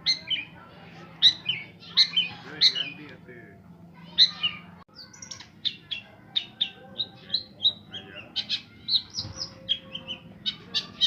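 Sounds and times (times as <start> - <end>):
shrike singing chirps and whistles: 1.2 - 3.0, 4.2 - 11.0.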